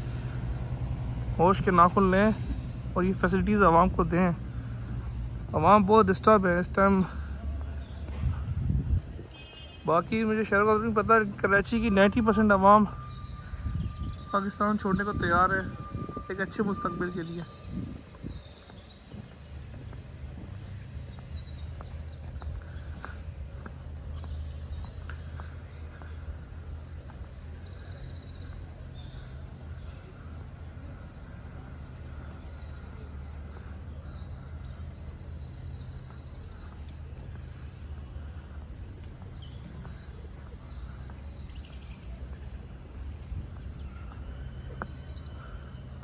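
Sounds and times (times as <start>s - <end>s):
low outdoor background rumble: 0.0s - 5.8s
small birds chirping and singing: 0.0s - 46.0s.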